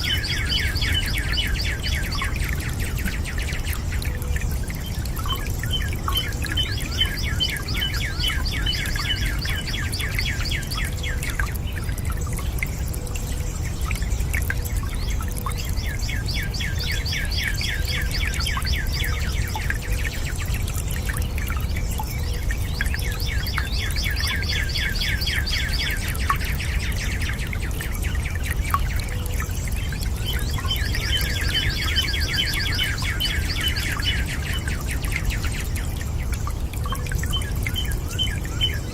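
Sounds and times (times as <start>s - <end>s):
running water: 0.0s - 38.9s
bird singing high trills: 30.3s - 35.4s.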